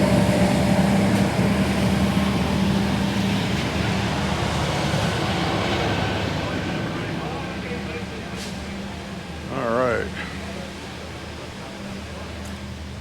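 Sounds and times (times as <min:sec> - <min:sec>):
street sweeper engine hum: 0:00.0 - 0:13.0
street sweeper hiss: 0:00.0 - 0:13.0.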